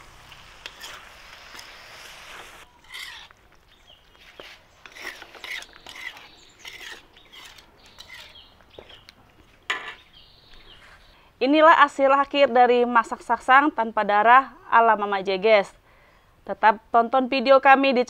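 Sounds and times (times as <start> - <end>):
meat sizzling in a pan: 0.0 - 3.1.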